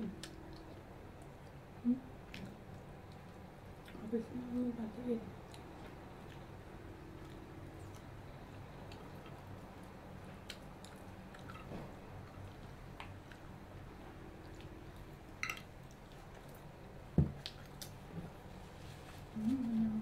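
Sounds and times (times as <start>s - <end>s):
low steady hum: 0.0s - 20.0s
chewing and biting: 5.4s - 13.6s.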